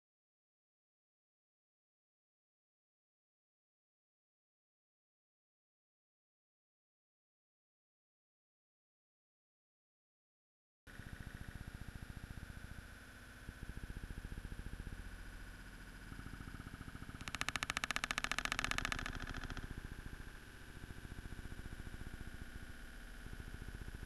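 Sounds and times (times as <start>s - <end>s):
slowed rain pulsing drone: 17.2s - 19.8s.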